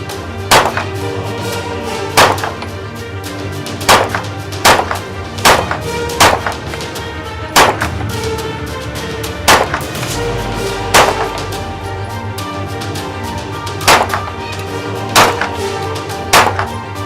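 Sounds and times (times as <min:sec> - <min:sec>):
background music: 0:00.0 - 0:17.0
gunshots: 0:00.5 - 0:00.9, 0:03.9 - 0:06.6, 0:07.6 - 0:07.9, 0:09.5 - 0:12.2, 0:13.8 - 0:14.3.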